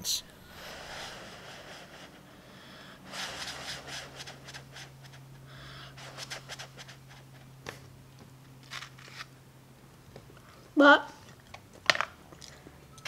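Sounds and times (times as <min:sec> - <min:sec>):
steady low hum: 0:00.0 - 0:13.0
chewing mouth sounds: 0:11.2 - 0:12.6.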